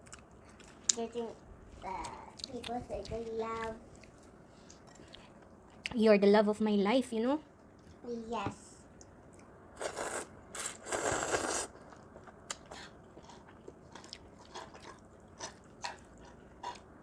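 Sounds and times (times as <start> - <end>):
crunching and chewing: 0.0 - 1.0, 9.4 - 17.0.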